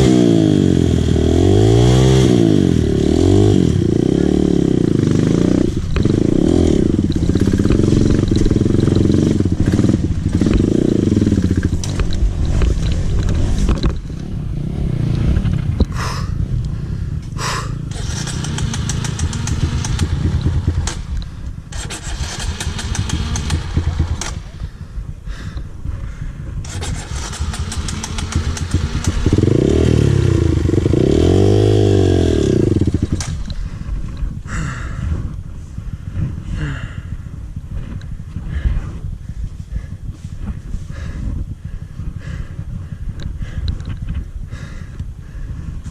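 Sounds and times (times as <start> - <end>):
dirt bike engine revving: 0.0 - 24.8, 26.6 - 35.0.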